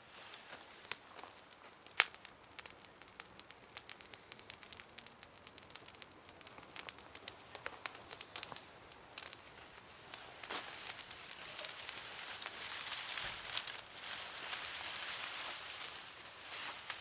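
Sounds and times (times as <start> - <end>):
campfire crackling and snapping: 0.0 - 17.0.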